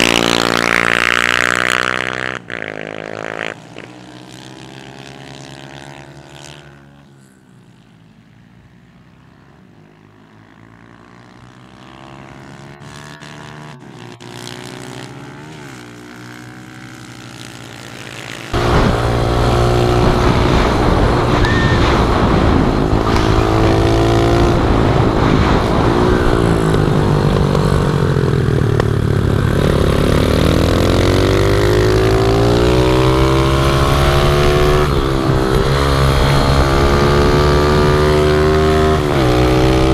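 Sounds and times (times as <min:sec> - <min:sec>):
pit bike engines running: 0:03.6 - 0:39.9
close engine revving: 0:18.5 - 0:39.9.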